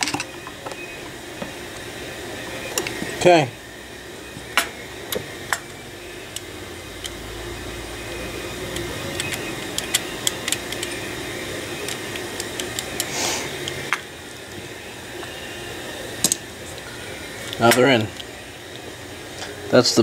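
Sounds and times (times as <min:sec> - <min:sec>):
steady hum: 0:00.0 - 0:20.0
screwdriver clicking on small screws: 0:08.7 - 0:11.0, 0:11.9 - 0:13.8.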